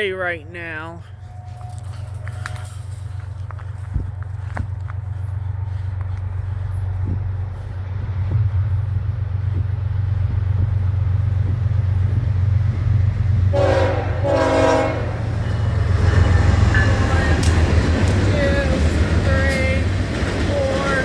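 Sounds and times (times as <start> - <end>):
diesel locomotive engine rumble: 0.0 - 21.0
locomotive horn blasts: 13.5 - 19.6.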